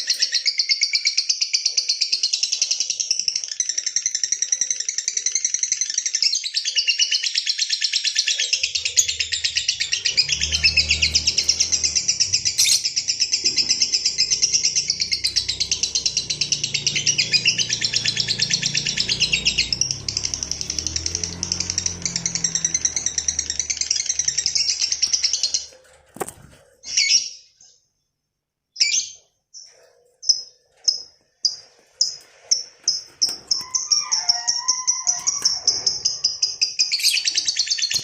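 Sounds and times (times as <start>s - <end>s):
lovebird chattering trill: 8.1s - 19.7s
low hum: 8.7s - 25.9s.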